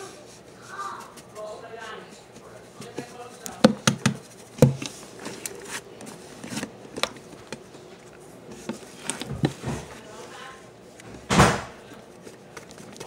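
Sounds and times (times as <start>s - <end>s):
clicks and taps of handling: 2.8s - 7.6s.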